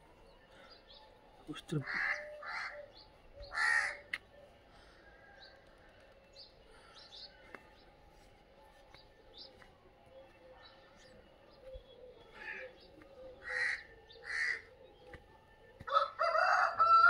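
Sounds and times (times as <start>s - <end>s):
loud harsh bird call: 1.8s - 4.2s, 12.4s - 14.7s.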